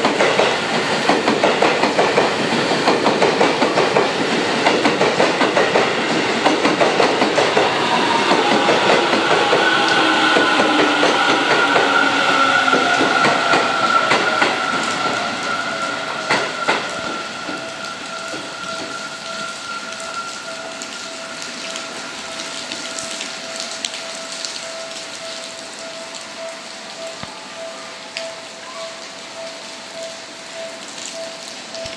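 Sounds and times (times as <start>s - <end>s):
train wheels clicking over rail joints: 0.0s - 19.0s
steady train tone: 0.0s - 31.9s.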